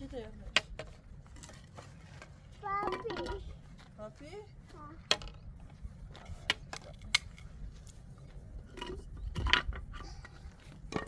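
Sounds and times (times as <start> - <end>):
objects clicking and knocking: 0.5 - 3.5, 8.7 - 11.0.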